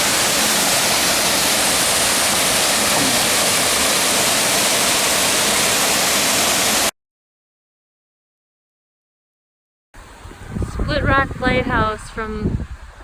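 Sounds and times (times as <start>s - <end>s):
waterfall roaring: 0.0s - 6.9s.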